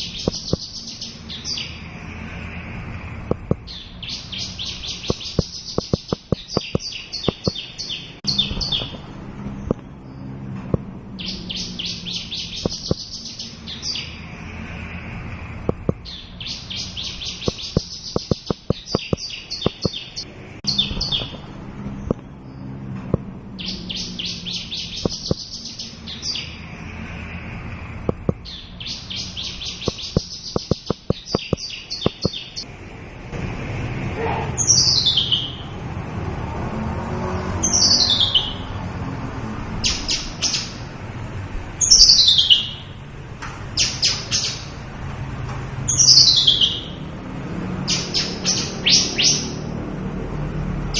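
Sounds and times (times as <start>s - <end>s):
bird sharp ticks: 0.2s - 0.8s, 3.3s - 3.7s, 4.4s - 7.8s, 12.6s - 13.2s, 15.7s - 16.2s, 17.0s - 20.2s, 25.0s - 25.6s, 28.1s - 28.5s, 29.6s - 32.6s
bird trilling: 3.3s - 9.9s, 11.2s - 14.2s, 15.7s - 21.4s, 23.6s - 26.6s, 28.1s - 32.6s, 45.9s - 47.0s.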